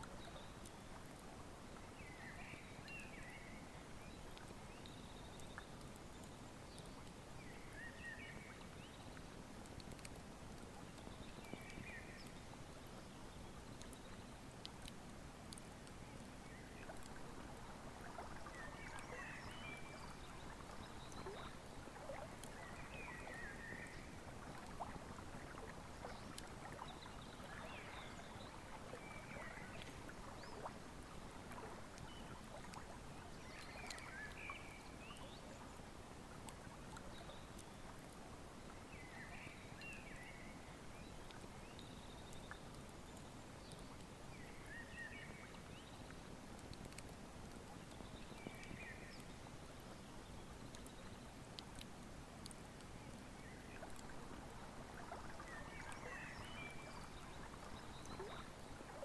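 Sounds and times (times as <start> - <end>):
river flowing: 53.4 - 59.0.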